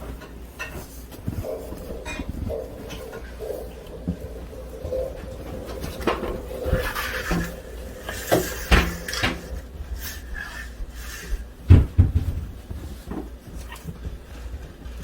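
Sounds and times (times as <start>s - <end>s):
mugs being handled: 0.0s - 15.0s
cupboard doors knocking: 11.7s - 12.6s.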